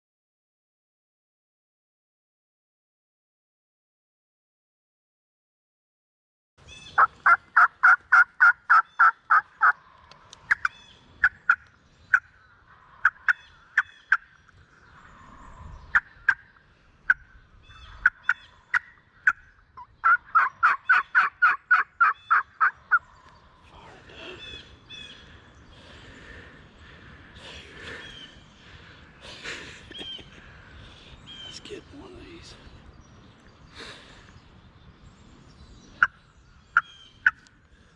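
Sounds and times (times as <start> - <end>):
turkey yelping: 6.7 - 9.8, 10.5 - 14.4, 17.1 - 23.1
turkey clucks: 6.7 - 15.2, 15.9 - 25.4, 36.0 - 37.5.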